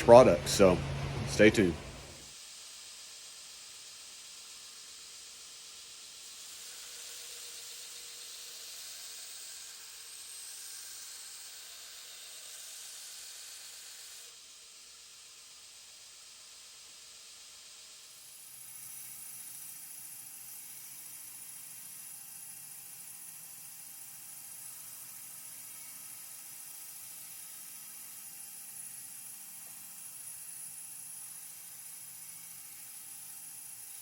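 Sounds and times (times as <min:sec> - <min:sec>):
steady hissing noise: 0:00.0 - 0:06.0.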